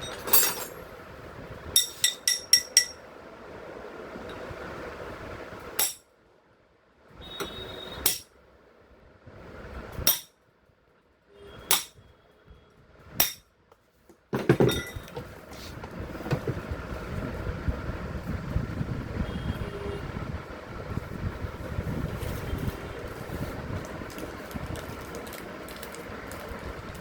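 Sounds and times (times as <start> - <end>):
hammer striking steel: 1.8 - 3.0, 5.8 - 6.0, 8.0 - 8.3, 10.1 - 10.3, 11.7 - 12.0, 13.2 - 13.4
metallic knocking and rattling: 14.4 - 15.2.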